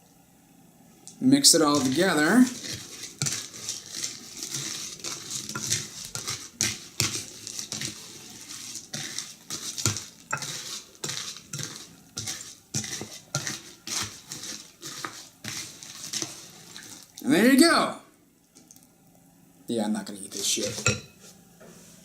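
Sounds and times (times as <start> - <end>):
spoon clinking and scraping bowl: 1.7 - 17.2, 20.6 - 21.3.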